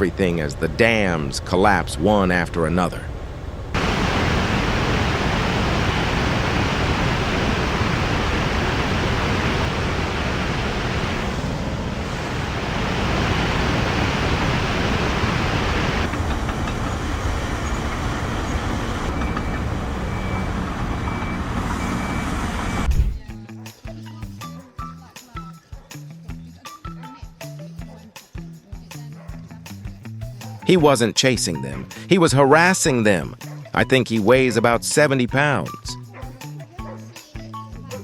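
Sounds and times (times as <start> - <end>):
rushing floodwater roar: 3.4 - 23.2.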